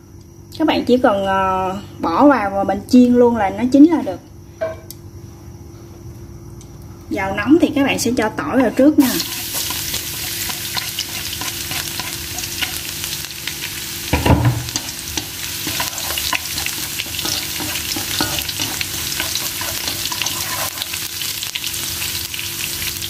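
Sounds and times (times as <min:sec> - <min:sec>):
garlic sizzling in hot oil: 0:08.5 - 0:23.0
dull knock: 0:14.2 - 0:14.7.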